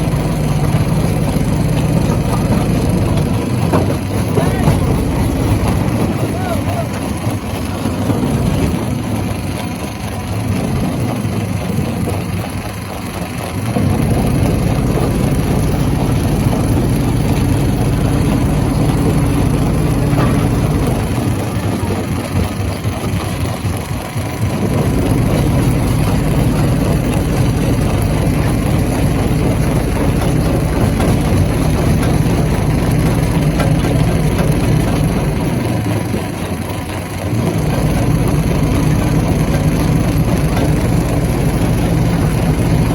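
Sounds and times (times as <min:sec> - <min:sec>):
stone crusher droning: 0:00.0 - 0:42.9.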